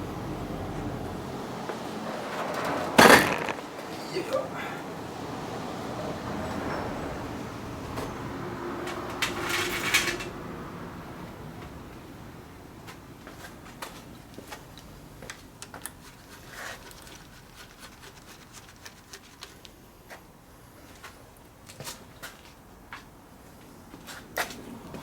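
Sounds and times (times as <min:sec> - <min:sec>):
tools and parts clinking: 0:03.0 - 0:03.7, 0:08.8 - 0:10.4.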